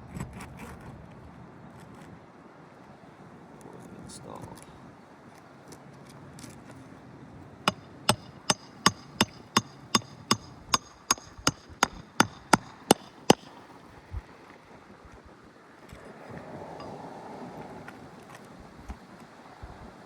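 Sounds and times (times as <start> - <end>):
hammer driving nails: 7.7 - 13.6.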